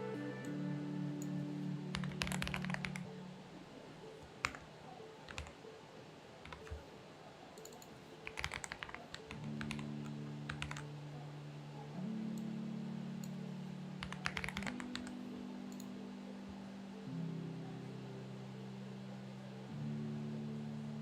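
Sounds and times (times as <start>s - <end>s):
soft background music: 0.0s - 21.0s
mechanical keyboard typing: 1.9s - 3.1s, 4.4s - 5.6s, 6.4s - 6.8s, 7.6s - 10.9s, 14.0s - 15.9s.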